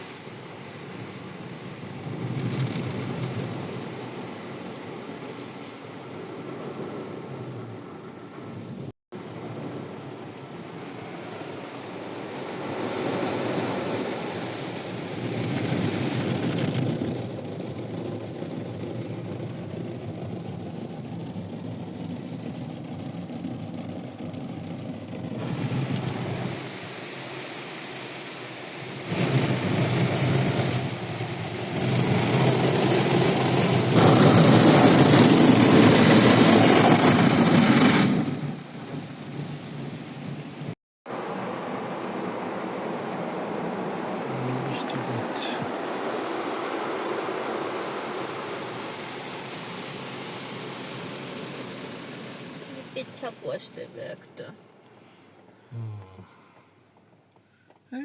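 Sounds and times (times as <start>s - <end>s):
car wash rushing noise: 0.0s - 54.9s.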